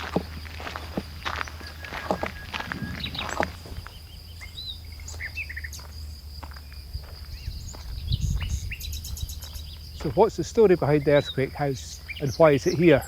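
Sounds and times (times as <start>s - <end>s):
footsteps: 0.0s - 4.2s, 5.0s - 8.6s, 9.4s - 10.7s
low outdoor rumble: 0.0s - 13.0s
small birds chirping: 0.0s - 13.0s.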